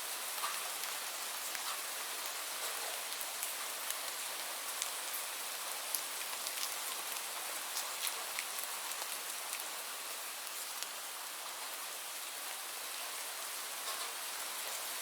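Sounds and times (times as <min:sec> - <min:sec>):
steady rainfall hiss: 0:00.0 - 0:15.0.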